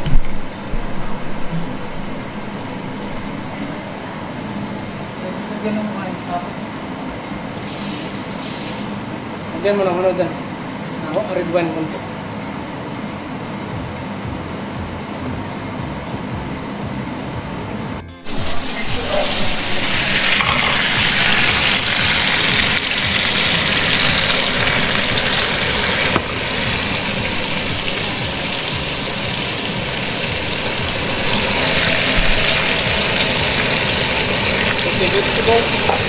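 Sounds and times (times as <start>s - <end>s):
vegetables sizzling in a frying pan: 18.3s - 36.0s.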